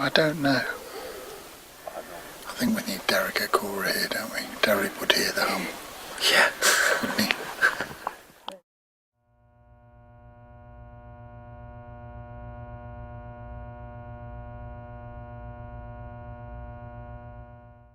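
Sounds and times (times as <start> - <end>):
synthesized low drone: 9.2 - 17.9.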